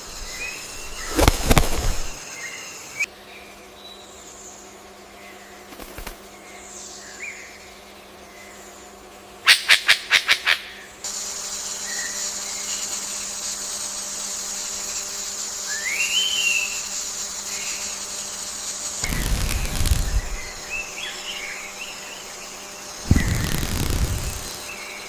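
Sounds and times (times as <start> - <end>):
high insect drone: 0.0 - 25.0
sharp clicks: 19.0 - 20.7.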